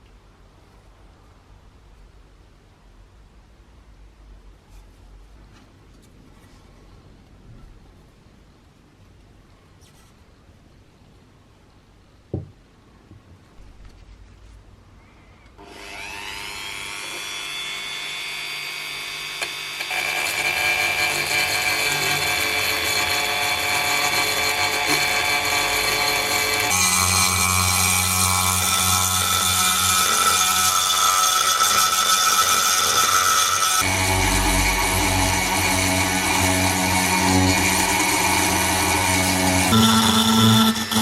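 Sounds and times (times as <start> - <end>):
power tool electric motor: 15.6 - 41.0.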